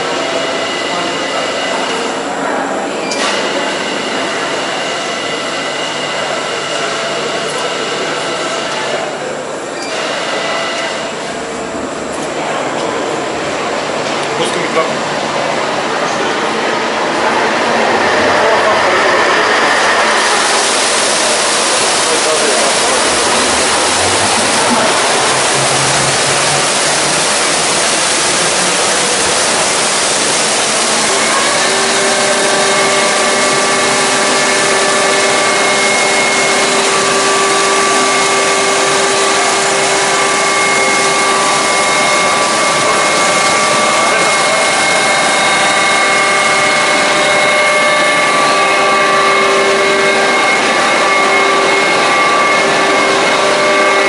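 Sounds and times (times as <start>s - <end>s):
loud rush of flowing water: 0.0s - 54.0s
machinery whining tones: 0.0s - 54.0s.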